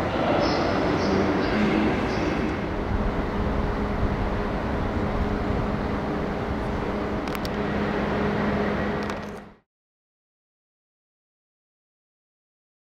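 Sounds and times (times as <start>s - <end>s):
train rumble with low hum: 0.0s - 9.6s.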